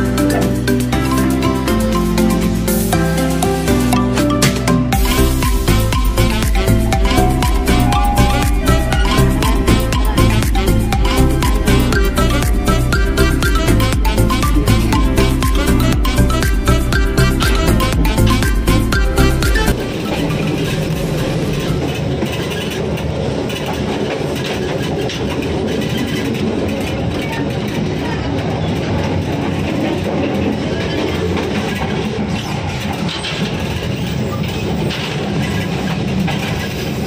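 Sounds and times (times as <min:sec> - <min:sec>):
train wheels rumbling on rails: 0:04.8 - 0:37.0.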